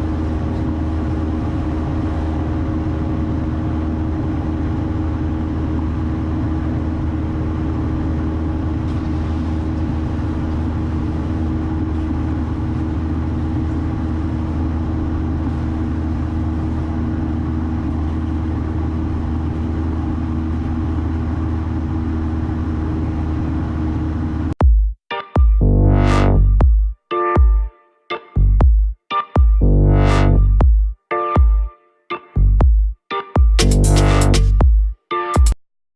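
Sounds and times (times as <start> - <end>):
airplane engine droning in cabin: 0.0 - 24.6.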